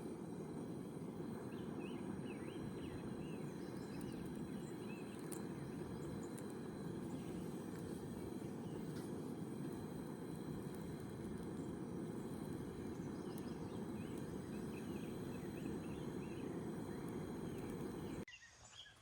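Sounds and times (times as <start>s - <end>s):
low rushing outdoor ambience: 0.0s - 18.3s
bird chirps: 12.8s - 19.0s.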